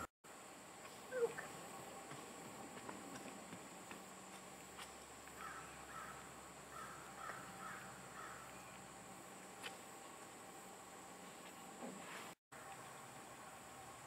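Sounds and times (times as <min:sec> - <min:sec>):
distant bird harsh calls: 0:05.3 - 0:08.9.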